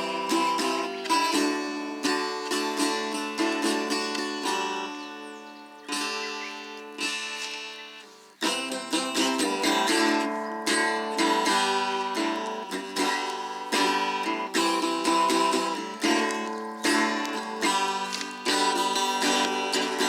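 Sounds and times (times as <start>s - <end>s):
plucked string chords: 0.0s - 20.0s.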